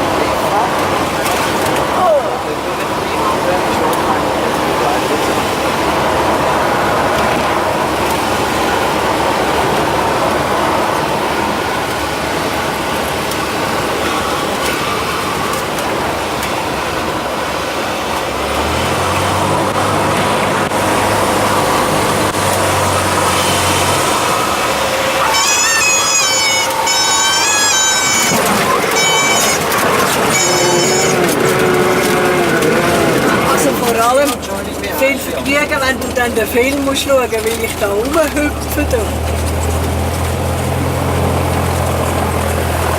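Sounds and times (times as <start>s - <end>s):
propeller plane engine droning: 0.0s - 42.9s
deeper hum: 19.4s - 33.9s.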